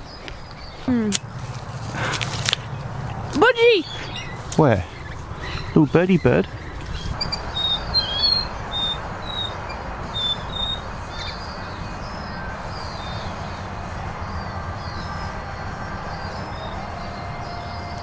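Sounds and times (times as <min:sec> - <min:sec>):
rushing background noise: 0:00.0 - 0:18.0
small bird chirping: 0:03.4 - 0:13.3.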